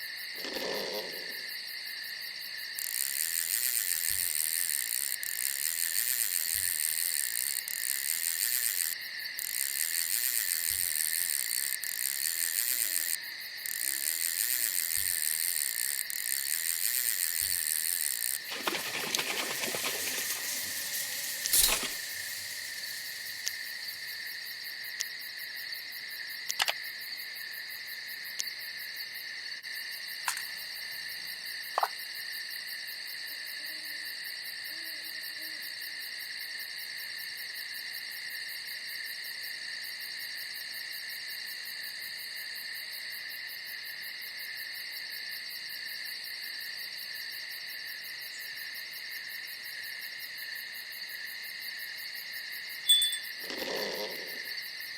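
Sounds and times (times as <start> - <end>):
crickets and insects trilling: 0.0 - 54.9
faint clicks: 2.8 - 24.4.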